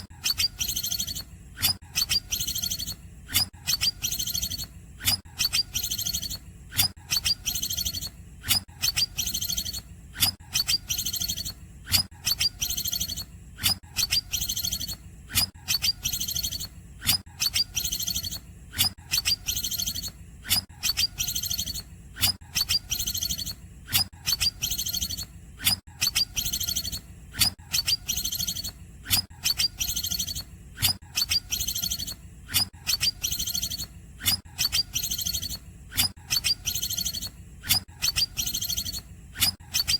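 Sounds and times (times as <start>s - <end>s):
bird singing high notes and trills: 0.2s - 1.3s, 1.9s - 3.0s, 3.6s - 4.7s, 5.4s - 6.4s, 7.0s - 8.2s, 8.8s - 9.9s, 10.5s - 11.6s, 12.2s - 13.3s, 14.0s - 15.0s, 15.6s - 18.4s, 19.1s - 20.2s, 20.8s - 21.9s, 22.5s - 23.6s, 24.2s - 25.3s, 26.0s - 27.1s, 27.7s - 30.5s, 31.1s - 32.2s, 32.8s - 34.0s, 34.6s - 35.6s, 36.3s - 37.4s, 38.0s - 39.0s.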